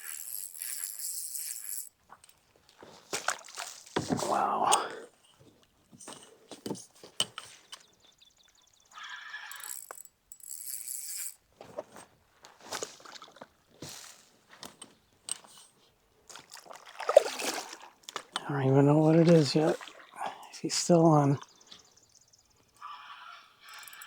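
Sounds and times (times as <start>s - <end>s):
fishing reel ratcheting: 0.0s - 2.4s, 9.0s - 11.4s, 23.6s - 24.0s.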